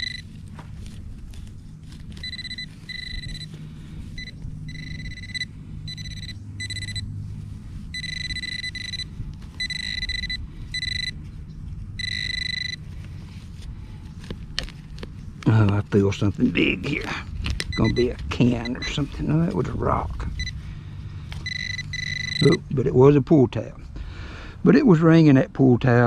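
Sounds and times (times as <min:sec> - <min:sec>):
metal detector beeping: 0:00.0 - 0:00.4, 0:02.1 - 0:07.1, 0:07.9 - 0:11.2, 0:12.0 - 0:12.9, 0:17.7 - 0:19.3, 0:20.3 - 0:20.6, 0:21.4 - 0:22.7
low rumble: 0:00.0 - 0:24.3.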